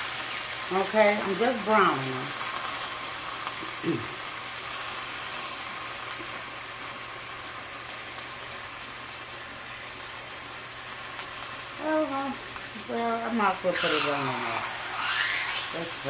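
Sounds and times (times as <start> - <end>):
food sizzling in frying pans: 0.0 - 16.0.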